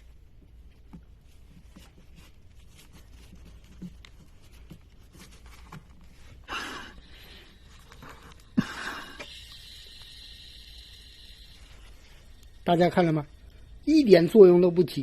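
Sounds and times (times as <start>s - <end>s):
scraping rustling noises: 0.6s - 6.4s.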